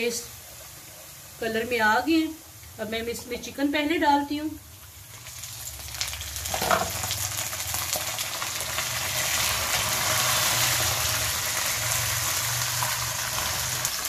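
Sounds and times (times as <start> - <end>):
chicken sizzling in hot oil: 4.6 - 14.0
spatula turning food in pan: 4.8 - 14.0.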